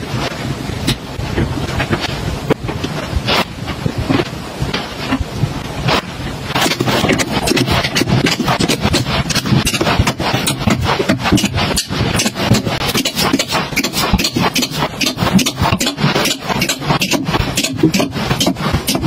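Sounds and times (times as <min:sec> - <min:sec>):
items clicking and knocking: 0:06.6 - 0:19.0.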